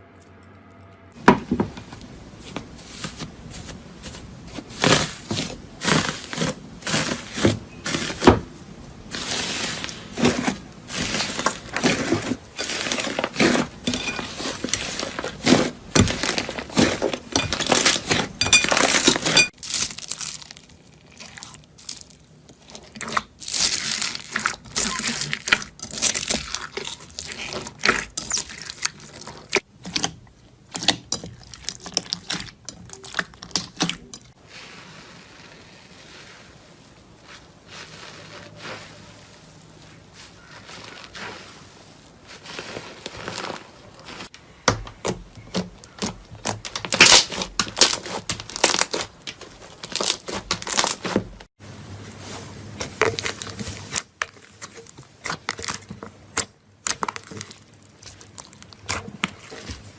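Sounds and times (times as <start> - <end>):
slime squishing: 2.4 - 51.5, 52.1 - 59.9
slime crackling and popping: 9.1 - 36.3, 45.0 - 51.4, 52.8 - 59.9.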